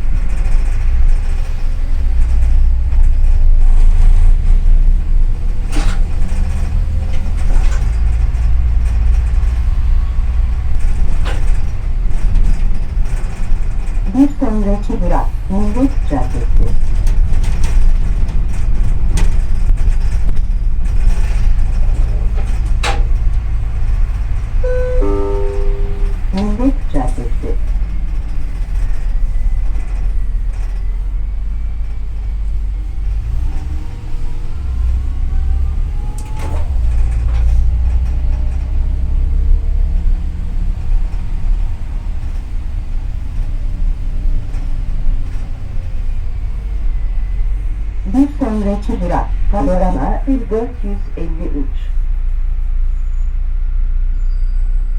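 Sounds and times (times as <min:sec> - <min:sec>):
bus engine and road rumble: 0:00.0 - 0:54.9
faint engine whine: 0:22.0 - 0:28.6.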